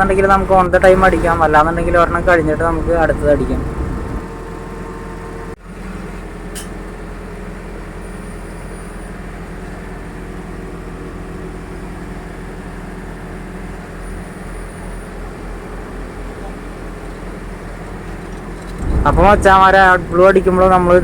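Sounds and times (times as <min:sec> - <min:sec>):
vehicle engine idling: 0:00.0 - 0:08.3.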